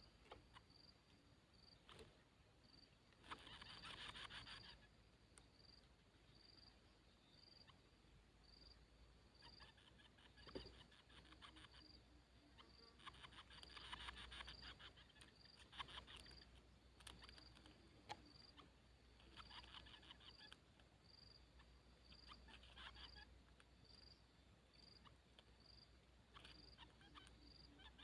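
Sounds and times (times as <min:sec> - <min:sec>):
insect chirping: 0:00.0 - 0:28.0
rapid insect clicking: 0:12.6 - 0:21.4.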